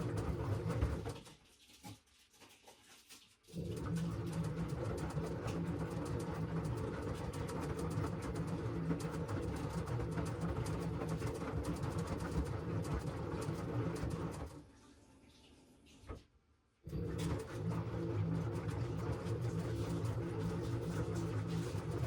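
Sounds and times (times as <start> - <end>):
washing machine drum churning: 0.0 - 1.3, 3.6 - 14.6, 16.9 - 22.0.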